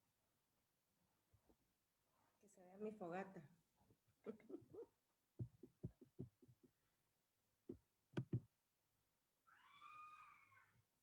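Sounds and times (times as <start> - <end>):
high-pitched drawn-out cry: 9.5 - 10.7.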